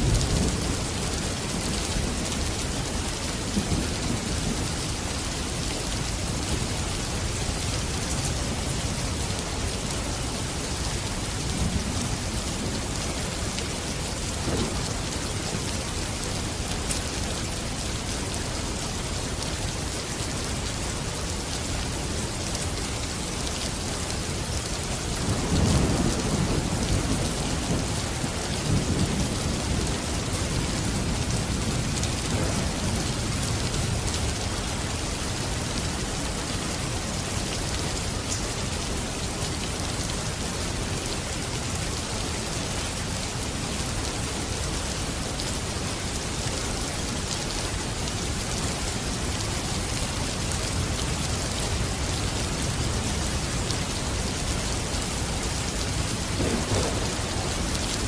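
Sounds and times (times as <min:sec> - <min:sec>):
steady rain falling: 0:00.0 - 0:58.0
low rumbling thunder: 0:25.2 - 0:34.2, 0:56.3 - 0:58.0.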